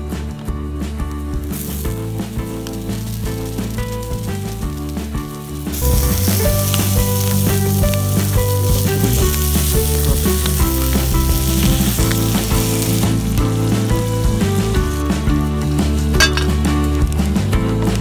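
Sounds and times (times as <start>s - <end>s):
background music: 0.0s - 18.0s
food sizzling on iron griddle: 1.5s - 15.1s.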